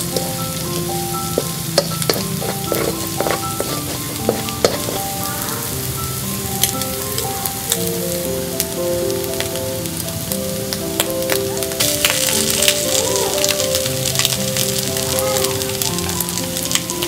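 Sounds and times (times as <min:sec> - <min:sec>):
egg sizzling in a wok: 0:00.0 - 0:17.0
plastic spatula scraping a pan: 0:02.1 - 0:05.2.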